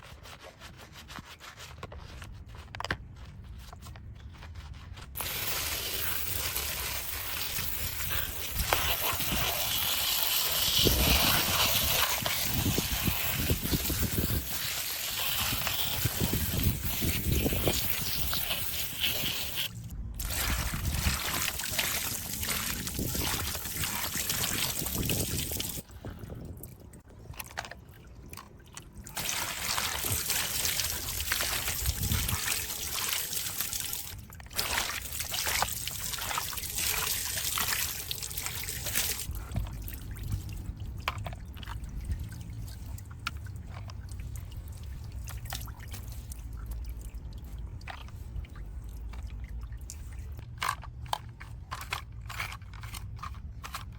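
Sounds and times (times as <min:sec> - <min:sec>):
small clicks and scrapes: 0:00.0 - 0:20.0, 0:49.0 - 0:53.9
water trickling and pouring: 0:05.2 - 0:50.6.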